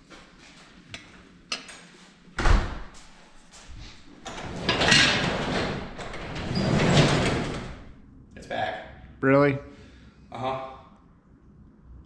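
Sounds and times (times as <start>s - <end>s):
garage door rattling open: 2.4s - 2.9s, 4.2s - 8.0s.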